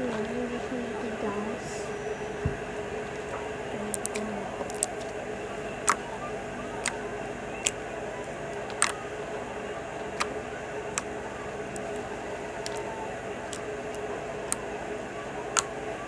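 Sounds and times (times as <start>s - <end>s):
steady background hum: 0.0s - 16.0s
slime clicks and pops: 3.9s - 5.1s.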